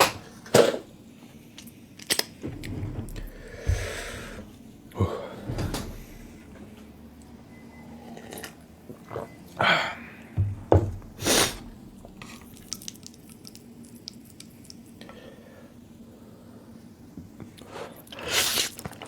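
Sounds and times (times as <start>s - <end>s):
wet eating sounds: 11.3s - 15.2s.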